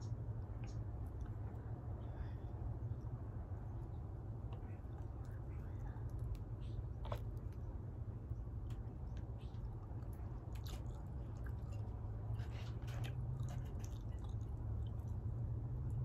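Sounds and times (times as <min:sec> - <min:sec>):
steady low hum: 0:00.0 - 0:16.0
person chewing: 0:09.4 - 0:15.3.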